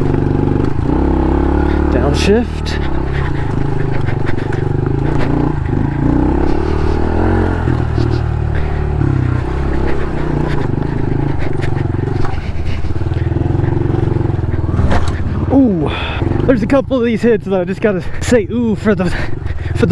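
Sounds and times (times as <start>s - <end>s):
dirt bike engine revving: 0.0s - 19.9s.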